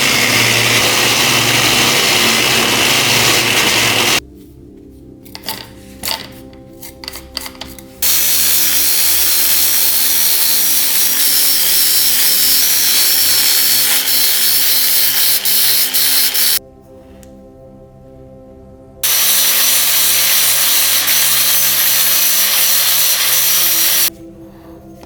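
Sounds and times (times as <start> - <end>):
power tool grinding: 0.0 - 4.2.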